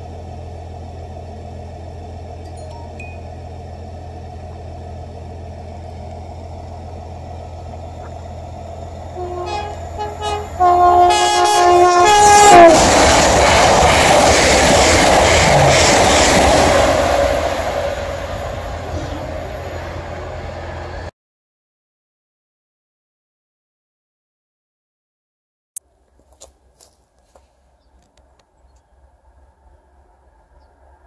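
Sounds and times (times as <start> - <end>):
train passing with wheel and air noise: 0.0 - 21.1, 26.1 - 31.0
train two-tone horn: 9.1 - 13.0, 18.8 - 19.7.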